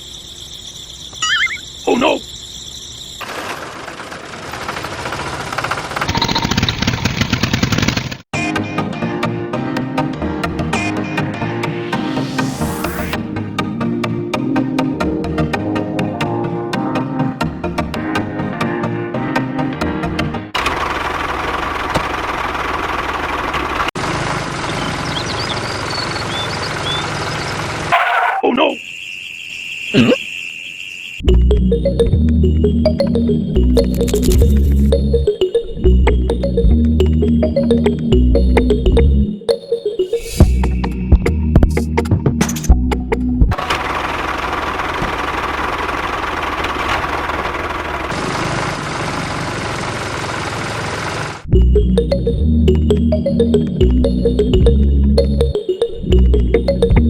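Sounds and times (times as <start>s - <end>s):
faint short high chirps: 1.1s - 2.4s
engine running steadily: 20.6s - 26.2s, 43.5s - 52.0s.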